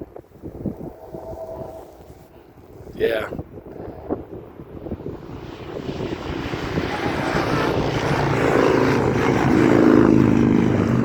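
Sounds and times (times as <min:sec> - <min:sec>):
passing road vehicles: 0:03.4 - 0:11.0.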